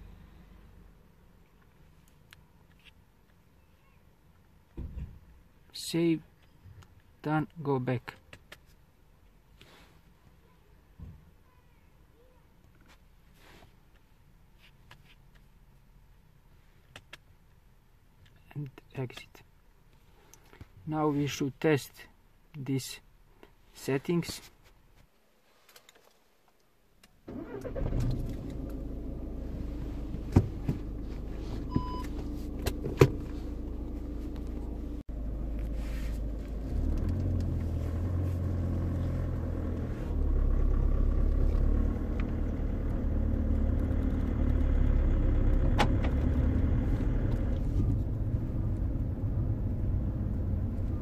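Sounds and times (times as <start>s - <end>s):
diesel car engine: 0.0s - 3.4s, 27.2s - 51.0s.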